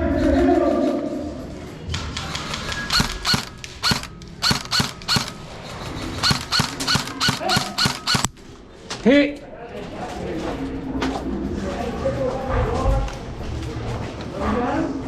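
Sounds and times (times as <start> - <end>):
airsoft gun shots: 2.2 - 5.4, 6.2 - 8.3.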